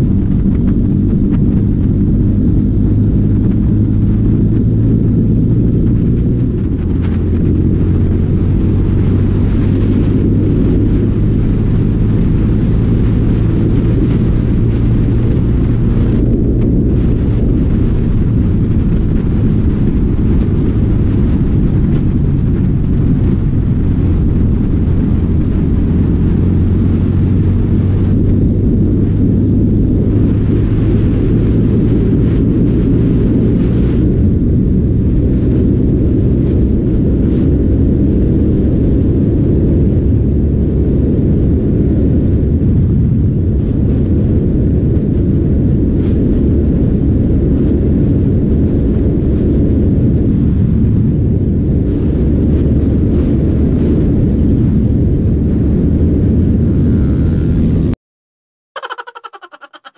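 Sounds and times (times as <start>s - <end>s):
motorcycle engine accelerating: 0.0s - 40.8s, 55.2s - 58.0s
wind rumble on microphone: 0.0s - 58.0s.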